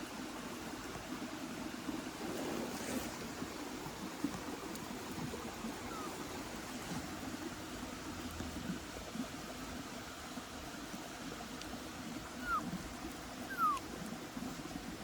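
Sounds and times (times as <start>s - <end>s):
small animal high cries: 5.8s - 6.2s, 12.4s - 12.8s, 13.5s - 13.9s.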